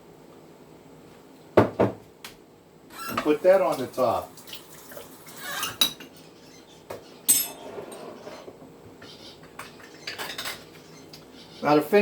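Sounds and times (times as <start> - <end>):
spoon clinking against dishes: 7.3 - 7.6, 9.6 - 10.6.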